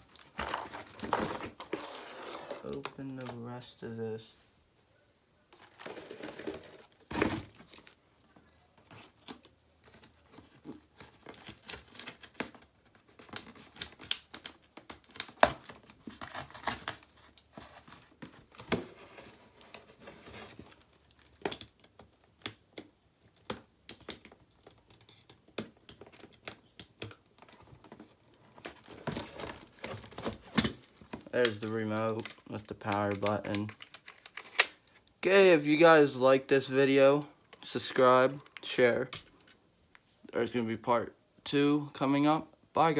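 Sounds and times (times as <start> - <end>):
packaging crinkling and tearing: 5.5 - 34.9.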